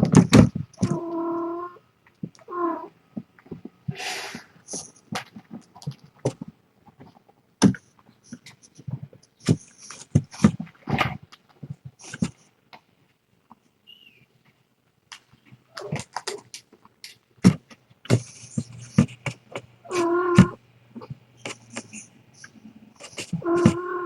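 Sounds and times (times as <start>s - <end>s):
cat meowing: 0.8s - 1.8s, 2.4s - 3.0s, 19.8s - 20.6s, 23.1s - 24.0s.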